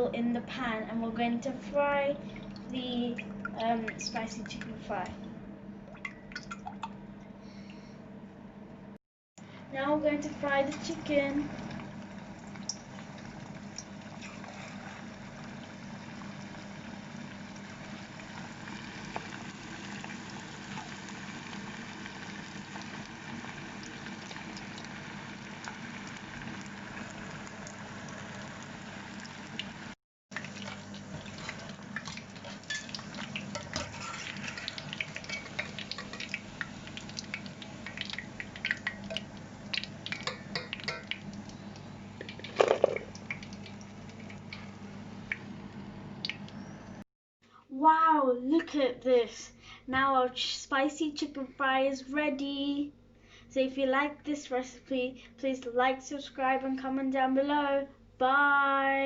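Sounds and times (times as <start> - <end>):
chicken sizzling in hot oil: 10.1 - 46.5
oil crackling and popping: 10.7 - 46.6.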